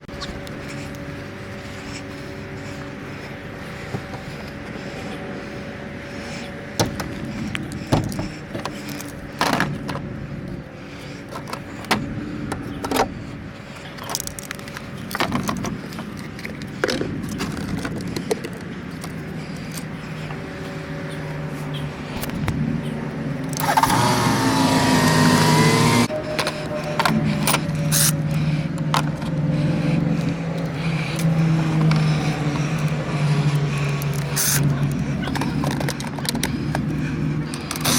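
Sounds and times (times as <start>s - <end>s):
car engine humming: 0.0s - 37.9s
clicks and knocks of handling: 13.9s - 20.4s, 35.2s - 36.9s.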